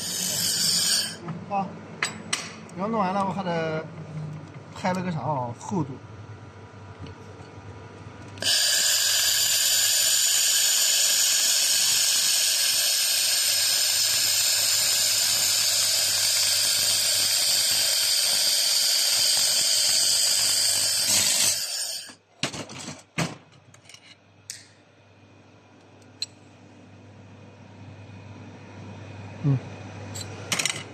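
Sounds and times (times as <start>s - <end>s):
welding machine hissing: 8.4s - 22.2s.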